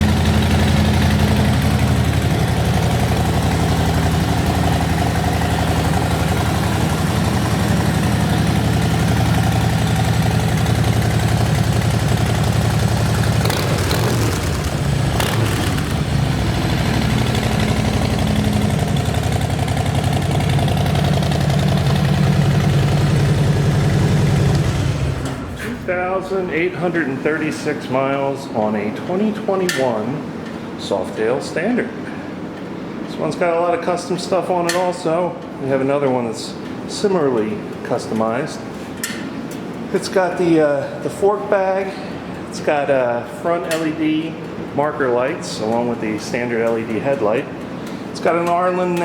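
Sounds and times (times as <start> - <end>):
motorcycle engine idling: 0.0 - 25.4.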